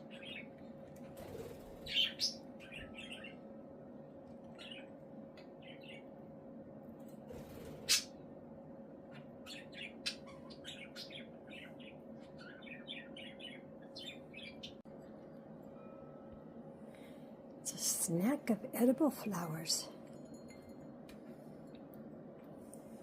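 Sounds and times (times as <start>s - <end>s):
budgerigars chirping: 9.1s - 14.8s.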